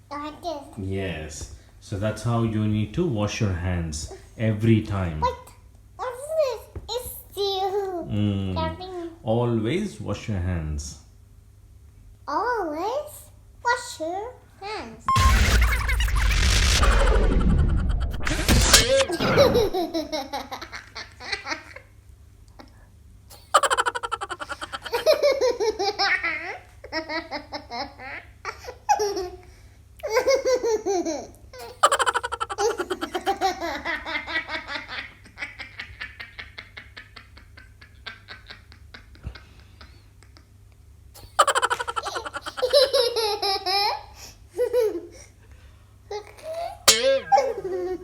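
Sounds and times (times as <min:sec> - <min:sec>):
young child laughing: 0:16.8 - 0:21.9, 0:22.5 - 0:40.6, 0:41.2 - 0:45.3.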